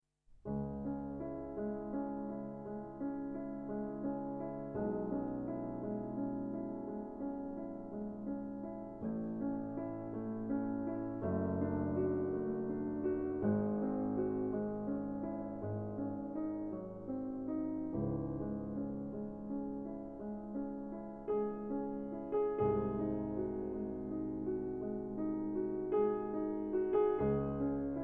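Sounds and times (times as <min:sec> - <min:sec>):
gentle piano chords: 0:00.4 - 0:28.0.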